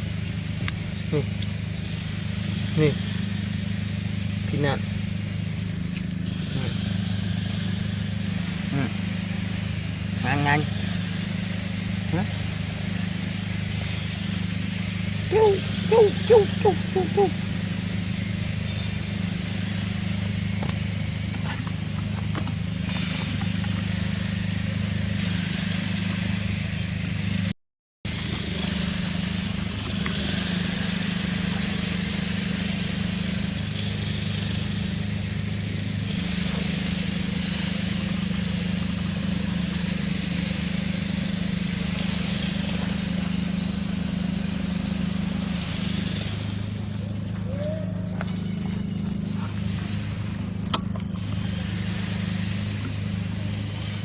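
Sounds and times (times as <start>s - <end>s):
low motor hum: 0.0s - 27.5s, 28.1s - 54.0s
outdoor background hiss: 0.0s - 27.5s, 28.1s - 54.0s.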